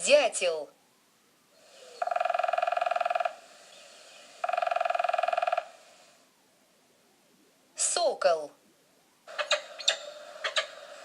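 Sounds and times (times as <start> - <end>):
woodpecker drumming on wood: 1.7 - 6.0, 9.3 - 11.0.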